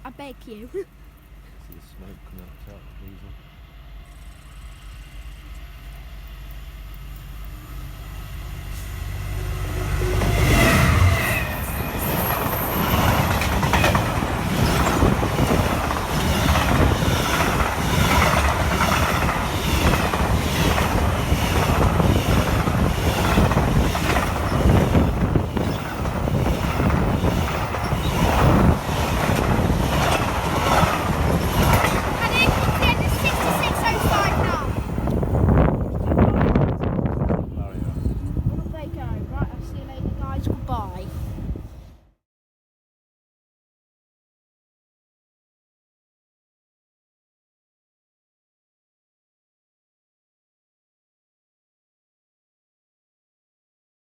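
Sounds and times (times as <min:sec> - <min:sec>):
locomotive engine rumble: 0:00.0 - 0:41.7
train wheels clattering on rails: 0:10.0 - 0:37.4.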